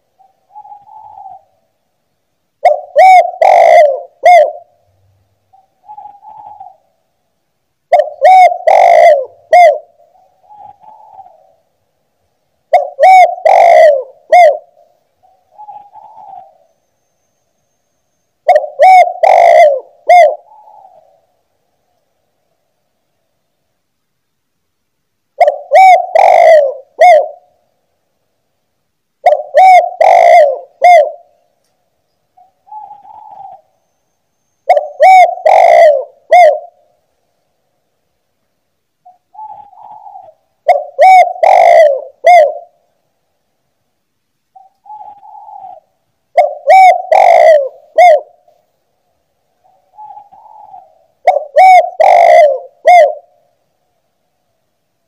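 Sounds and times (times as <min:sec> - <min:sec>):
dove cooing: 0:00.0 - 0:01.7, 0:02.6 - 0:04.8, 0:05.5 - 0:07.0, 0:07.9 - 0:11.7, 0:12.7 - 0:16.8, 0:18.4 - 0:21.3, 0:25.4 - 0:27.6, 0:29.2 - 0:31.5, 0:32.4 - 0:33.8, 0:34.6 - 0:37.0, 0:39.0 - 0:42.9, 0:44.5 - 0:48.6, 0:49.6 - 0:53.6.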